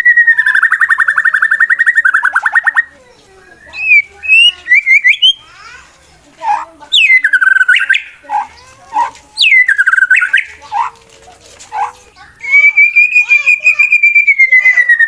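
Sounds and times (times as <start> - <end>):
bird singing whistled phrases: 0.0 - 5.4, 6.9 - 8.2, 9.4 - 10.6, 11.9 - 15.0.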